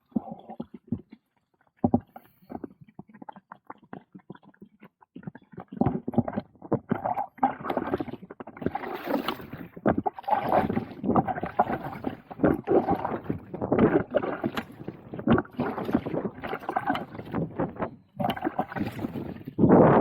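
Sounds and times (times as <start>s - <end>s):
paddle dripping and knocking: 5.7s - 20.0s
paddle splashing water: 8.6s - 19.6s.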